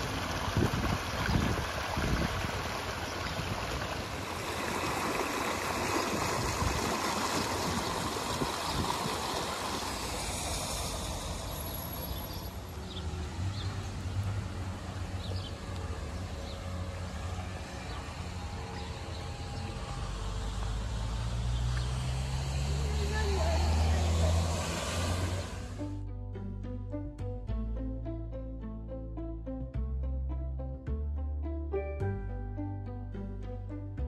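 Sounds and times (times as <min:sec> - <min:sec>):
water rushing over rocks: 0:00.0 - 0:12.6.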